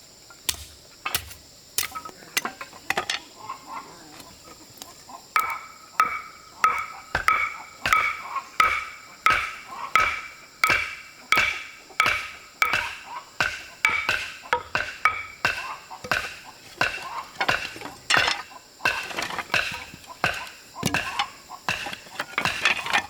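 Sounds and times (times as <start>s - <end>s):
hand tool striking with ring: 0.5s - 2.5s, 5.4s - 23.0s.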